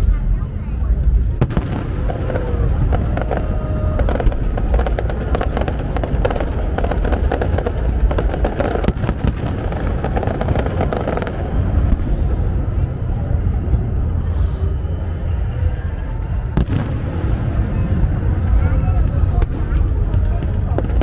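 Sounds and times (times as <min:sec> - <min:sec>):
fireworks popping and crackling: 0:01.4 - 0:13.0, 0:16.6 - 0:21.0.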